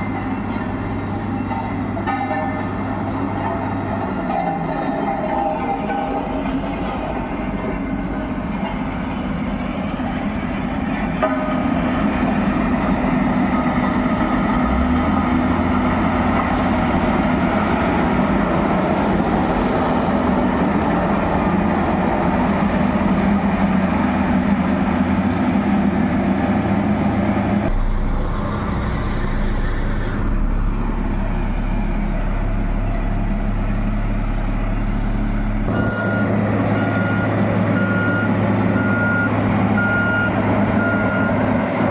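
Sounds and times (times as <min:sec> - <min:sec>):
heavy truck engine running: 0:00.0 - 0:41.9
reversing alarm beeping: 0:35.7 - 0:41.5.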